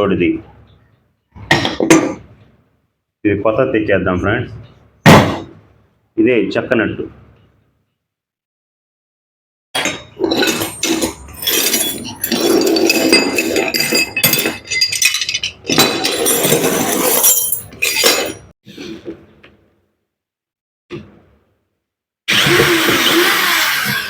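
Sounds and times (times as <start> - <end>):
metal parts and tools clinking: 9.8 - 18.5.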